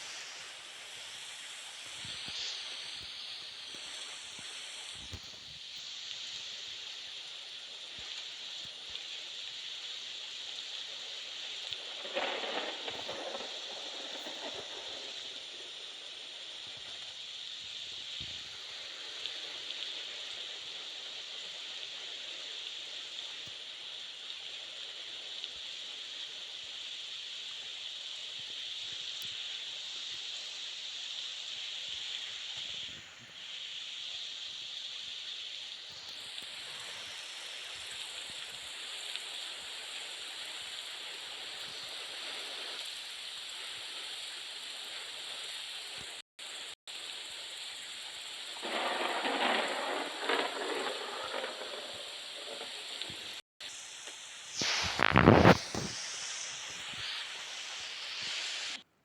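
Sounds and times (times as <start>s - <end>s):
mountain bike rolling on trail: 48.6s - 53.4s.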